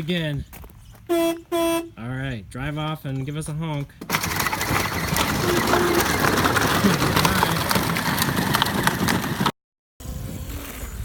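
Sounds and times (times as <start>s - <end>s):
wheels crunching over rough ground: 3.1s - 9.6s.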